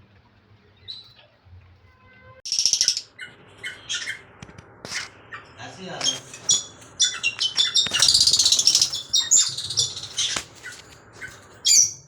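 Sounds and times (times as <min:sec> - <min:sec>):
parrots chirping: 0:02.5 - 0:12.0.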